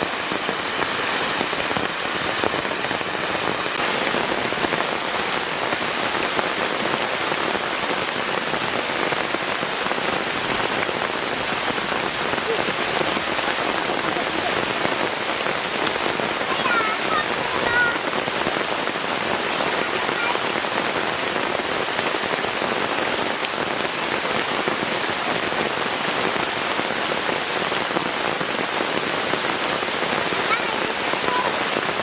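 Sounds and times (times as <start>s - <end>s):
heavy rain falling: 0.0s - 32.0s.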